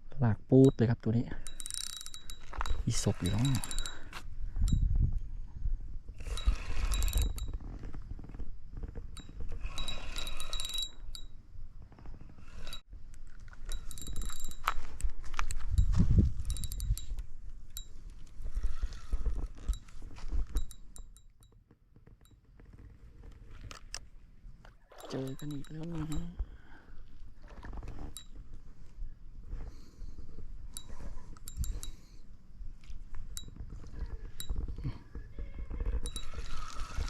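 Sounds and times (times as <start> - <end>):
metallic ticks: 0.6 - 4.8, 12.6 - 18.4, 25.0 - 26.4
fishing reel winding: 1.4 - 4.2, 6.2 - 7.7, 9.2 - 11.3, 12.4 - 12.8, 13.6 - 15.6, 17.8 - 19.7, 36.0 - 37.0.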